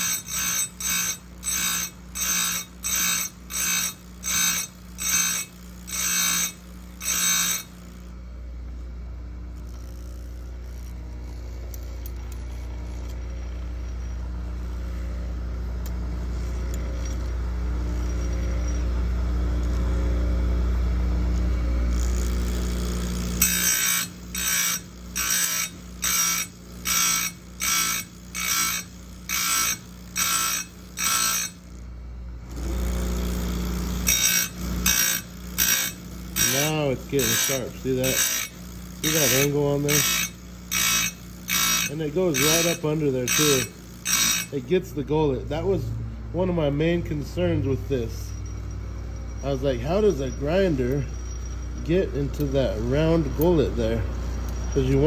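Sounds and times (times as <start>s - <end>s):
bench grinder sharpening chain: 0.0s - 7.9s, 21.9s - 31.7s, 32.5s - 45.6s, 48.3s - 55.0s.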